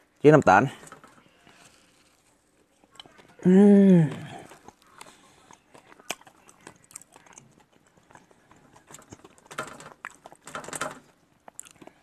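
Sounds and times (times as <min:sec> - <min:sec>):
mouth chewing wetly: 0:04.1 - 0:10.5.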